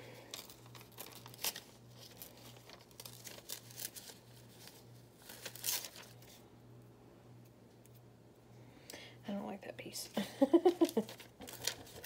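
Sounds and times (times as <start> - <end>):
paper rustling and tearing: 0.3 - 6.4, 10.7 - 12.0.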